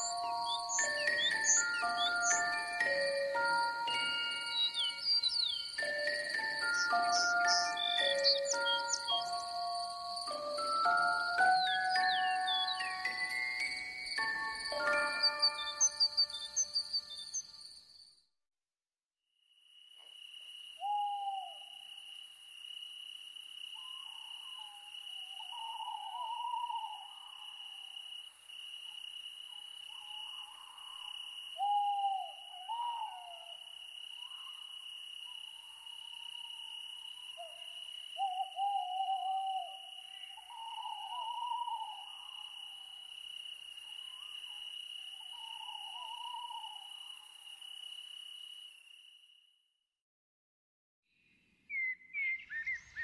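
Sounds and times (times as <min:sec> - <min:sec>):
high-pitched insect trill: 0:00.0 - 0:18.2, 0:19.6 - 0:49.6
owl hooting: 0:20.8 - 0:21.7, 0:24.5 - 0:27.3, 0:31.6 - 0:33.6, 0:38.2 - 0:42.5, 0:45.2 - 0:47.2.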